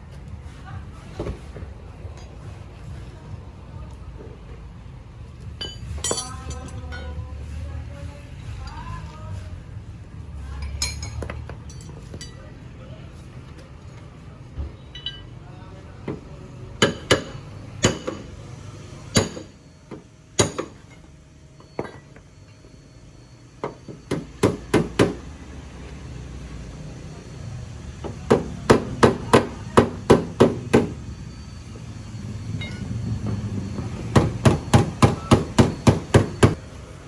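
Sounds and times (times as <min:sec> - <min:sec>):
hammer striking car body: 0:16.8 - 0:18.4, 0:19.1 - 0:20.9, 0:23.6 - 0:25.3, 0:28.0 - 0:31.0, 0:34.1 - 0:36.6.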